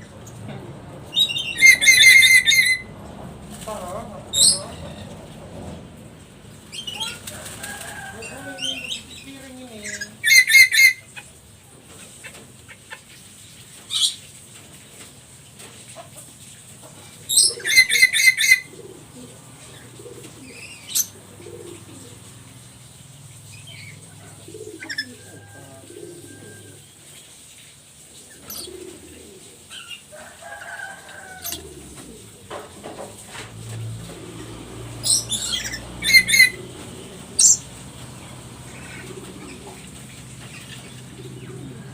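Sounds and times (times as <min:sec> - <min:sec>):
parrot screeching and squawking: 0:01.2 - 0:02.9, 0:09.9 - 0:11.1, 0:17.4 - 0:18.7, 0:35.0 - 0:36.6.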